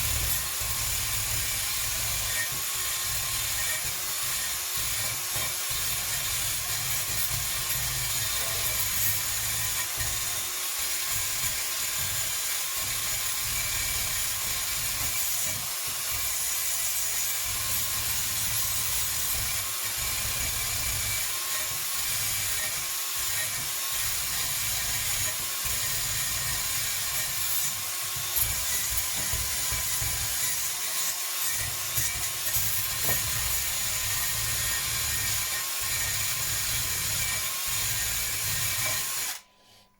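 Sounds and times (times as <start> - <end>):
power tool abrasive rubbing: 0.0 - 10.2, 16.2 - 39.8.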